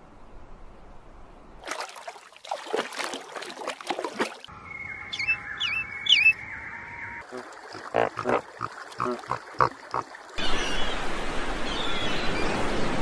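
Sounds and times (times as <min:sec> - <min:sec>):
swooping bird chirps: 0:04.5 - 0:07.2
harsh rapid bird calls: 0:04.6 - 0:07.2.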